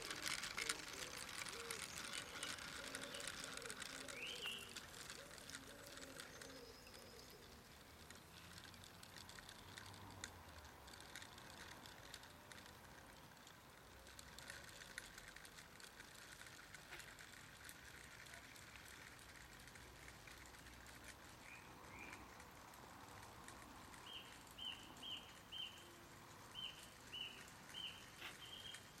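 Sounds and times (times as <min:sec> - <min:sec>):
faint bird calling: 0:00.6 - 0:07.6.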